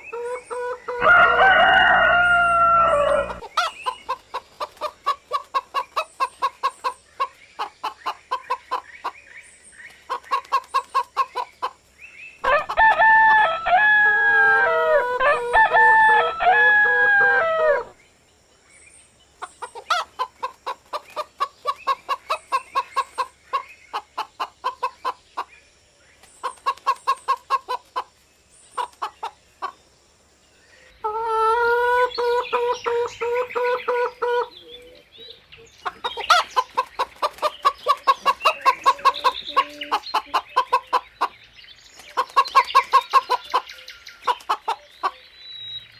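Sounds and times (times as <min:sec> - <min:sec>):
chickens clucking: 0:00.0 - 0:17.9, 0:19.3 - 0:25.6, 0:26.2 - 0:29.9, 0:31.0 - 0:45.3
rooster crowing: 0:00.8 - 0:03.4, 0:12.4 - 0:18.0.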